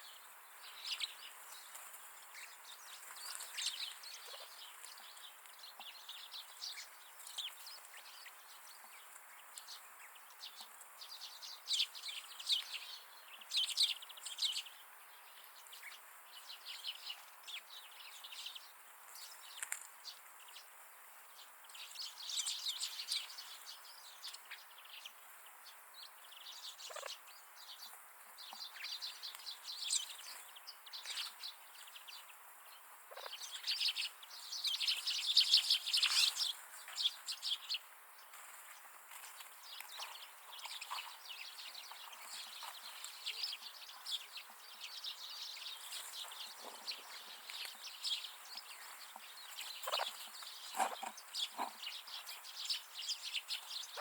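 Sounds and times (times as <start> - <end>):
birds chirping and twittering: 0.0 - 54.0.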